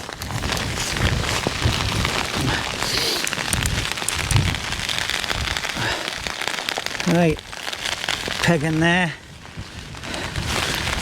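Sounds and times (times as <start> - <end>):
heavy rain pattering: 0.0 - 11.0
wind buffeting microphone: 0.0 - 11.0.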